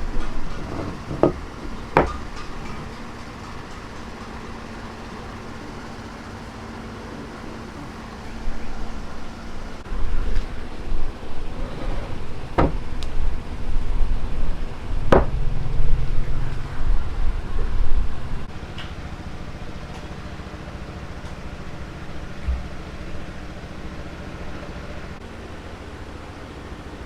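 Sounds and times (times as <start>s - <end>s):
sharp knocks: 0.0s - 4.3s, 15.1s - 15.6s
uneven rumble: 0.0s - 6.0s, 7.2s - 18.5s
steady low hum: 0.0s - 27.0s.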